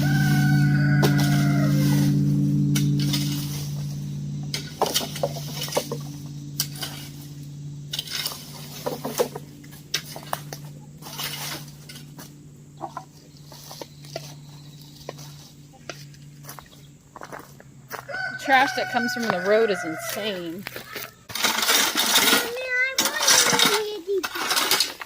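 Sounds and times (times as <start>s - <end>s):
scraping and clattering of debris: 0.0s - 17.6s, 18.8s - 25.0s
steady low hum: 0.0s - 23.1s
chickens clucking: 8.8s - 16.7s.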